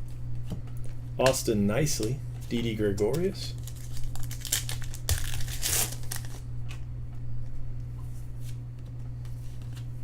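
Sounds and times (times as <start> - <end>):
cards clicking and rustling: 3.0 - 6.8
foil wrapper crinkling: 3.5 - 6.4.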